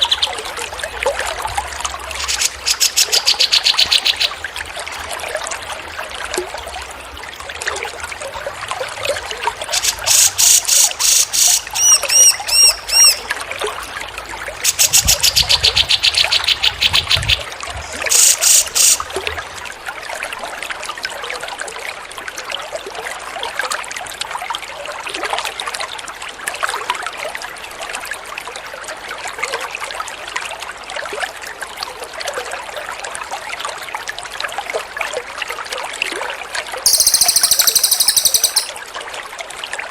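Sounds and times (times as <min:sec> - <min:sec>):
songbird trilling and chirping: 0:11.8 - 0:13.2, 0:36.9 - 0:38.7.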